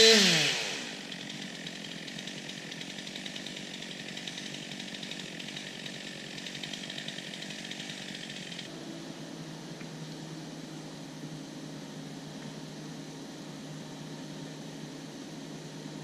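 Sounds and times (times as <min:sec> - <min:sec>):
chainsaw buzzing: 0:00.0 - 0:08.7.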